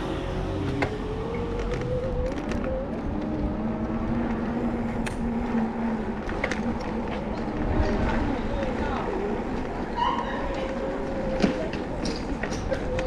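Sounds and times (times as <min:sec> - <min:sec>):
vehicle engine running: 0:00.0 - 0:03.5.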